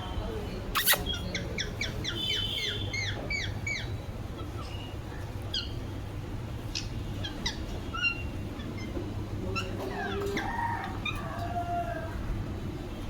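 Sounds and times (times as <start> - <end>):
parakeet chirping and squawking: 0.8 - 4.8, 7.2 - 9.0.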